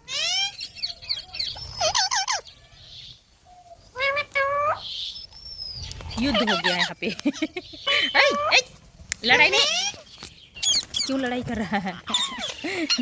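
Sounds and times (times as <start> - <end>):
parrots squawking: 0.0 - 3.2, 3.8 - 5.3, 6.0 - 8.7, 9.3 - 11.2, 12.0 - 13.0.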